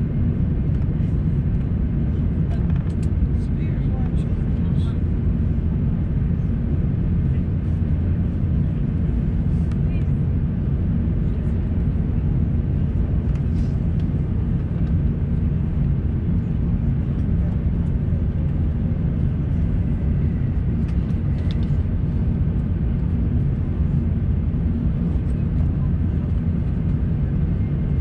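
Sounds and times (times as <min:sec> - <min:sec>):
airplane cabin rumble: 0:00.0 - 0:28.0.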